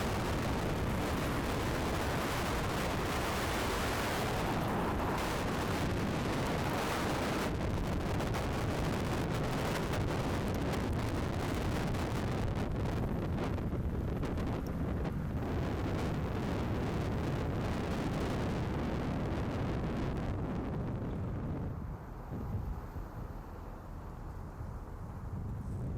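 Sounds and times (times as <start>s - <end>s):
gusty wind buffeting microphone: 0.0s - 25.9s.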